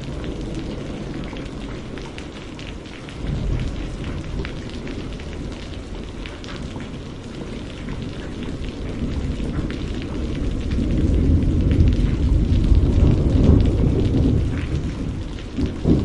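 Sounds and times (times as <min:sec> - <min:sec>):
low rumble of thunder: 0:00.0 - 0:16.0
steady rain: 0:00.0 - 0:16.0.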